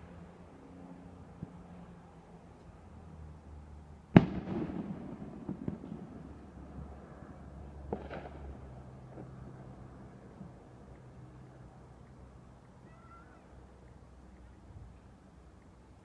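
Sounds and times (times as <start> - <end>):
firework bangs: 4.1 - 6.6, 7.8 - 9.3
firework crackling and pops: 4.2 - 6.6, 7.8 - 9.4.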